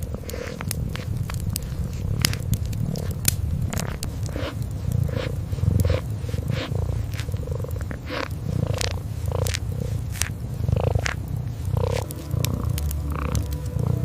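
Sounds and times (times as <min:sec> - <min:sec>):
kitten purring: 0:00.0 - 0:14.0
wood fire crackling: 0:00.0 - 0:14.0.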